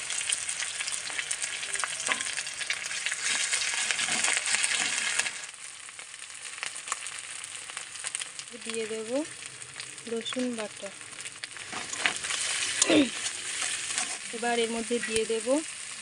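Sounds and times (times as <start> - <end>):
onions sizzling in hot oil: 0.0 - 16.0
metal spatula scraping pan: 2.0 - 2.4, 3.0 - 5.4, 11.6 - 15.3.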